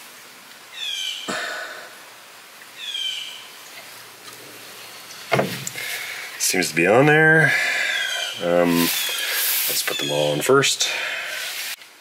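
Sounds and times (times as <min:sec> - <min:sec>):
bird call sliding downward: 0:07.8 - 0:10.4.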